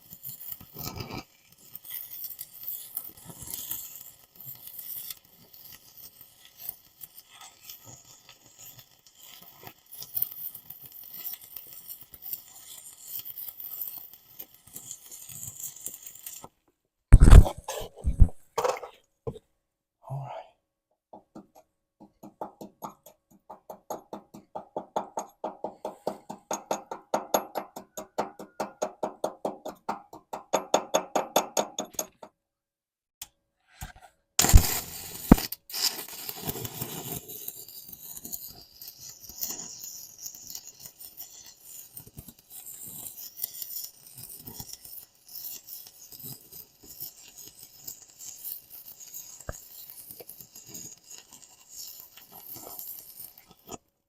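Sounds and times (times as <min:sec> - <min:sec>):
welding arc crackling hiss: 0:00.1 - 0:16.5, 0:34.4 - 0:53.8
regular scraping strokes: 0:17.2 - 0:19.0, 0:33.6 - 0:43.1.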